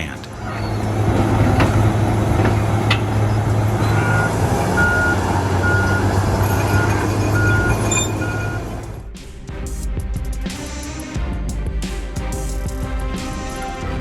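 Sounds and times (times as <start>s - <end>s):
bulldozer diesel engine droning: 0.0s - 9.0s
metal clanks: 0.3s - 5.1s
reversing alarm beeping: 2.9s - 8.9s.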